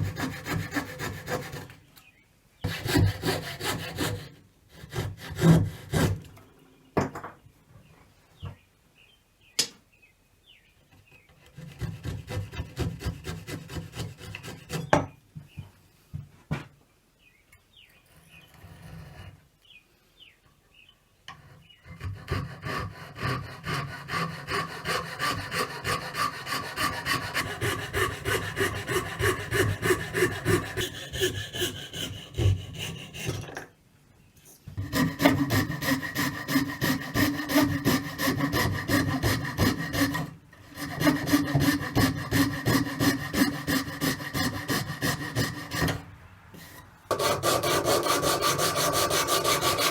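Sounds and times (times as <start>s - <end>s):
hand saw cutting wood: 0.0s - 1.8s, 2.7s - 6.4s, 11.5s - 15.0s, 21.3s - 33.6s, 34.8s - 49.9s.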